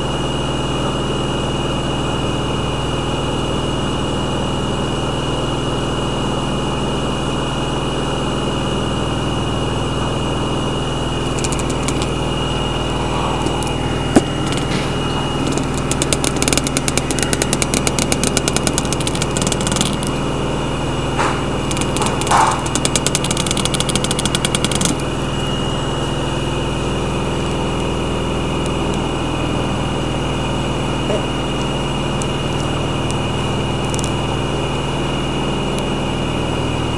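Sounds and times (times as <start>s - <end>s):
washing machine spinning: 0.0s - 36.9s
fast rattling ticking: 11.2s - 25.4s, 31.4s - 34.3s
sharp knock: 21.2s - 25.0s.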